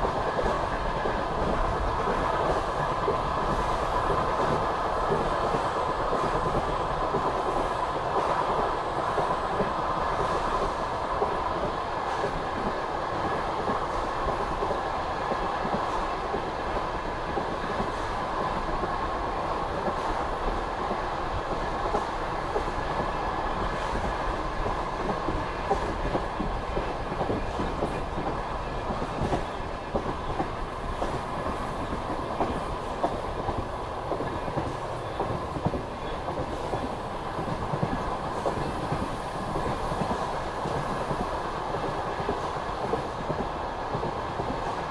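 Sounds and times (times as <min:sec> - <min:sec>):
train wheels clickety-clack: 0:00.0 - 0:44.9.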